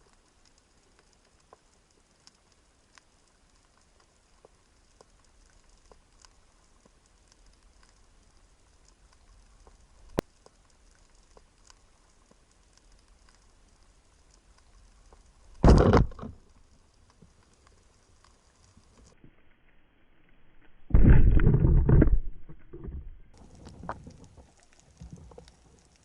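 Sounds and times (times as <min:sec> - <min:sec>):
underwater crackling clicks: 0:00.1 - 0:19.2, 0:20.9 - 0:26.0.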